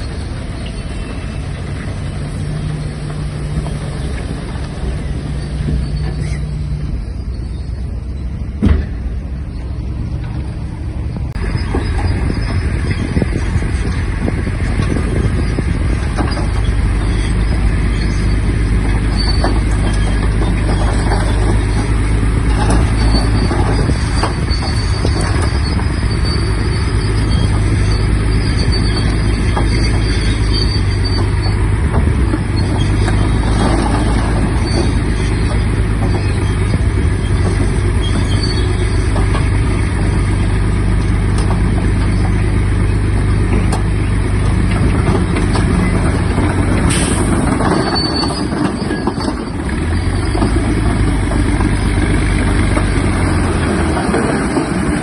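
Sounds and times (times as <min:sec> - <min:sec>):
bulldozer diesel engine droning: 0:00.0 - 0:55.0
faint high squeal: 0:05.1 - 0:08.4, 0:46.9 - 0:50.5.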